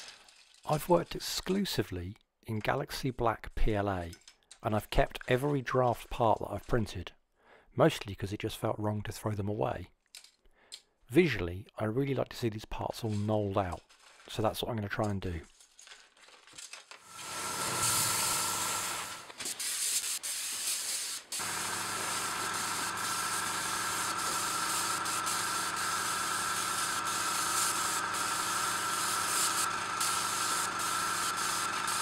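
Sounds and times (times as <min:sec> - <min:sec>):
small compressor humming: 0:17.1 - 0:19.3, 0:21.3 - 0:32.0
airbrush spraying hiss: 0:17.1 - 0:32.0.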